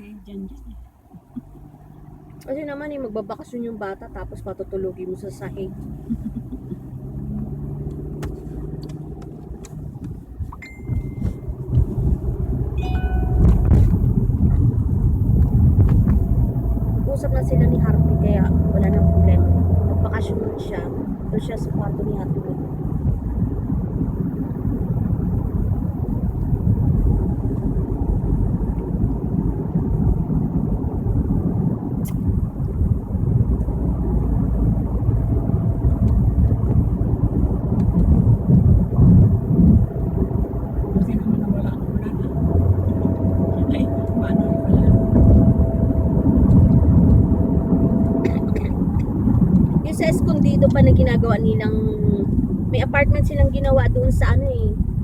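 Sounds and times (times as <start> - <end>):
engine and tyre rumble: 0.0 - 55.0.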